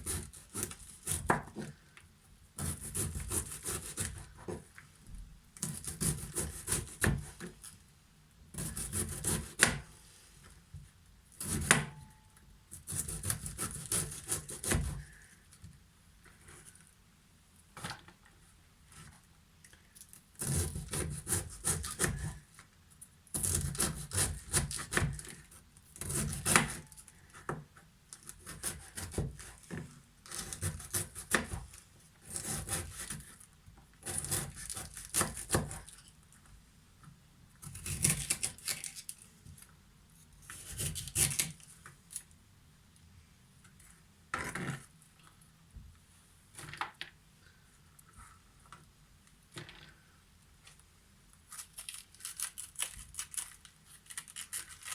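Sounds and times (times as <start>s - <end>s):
knife slicing cabbage on board: 2.6s - 4.6s, 5.6s - 7.5s, 8.5s - 9.8s, 20.4s - 22.4s, 23.4s - 25.3s, 32.2s - 33.4s, 34.0s - 35.9s.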